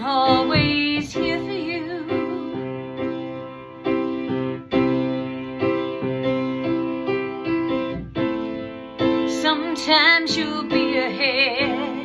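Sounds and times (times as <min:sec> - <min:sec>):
piano chords: 0:00.0 - 0:12.0.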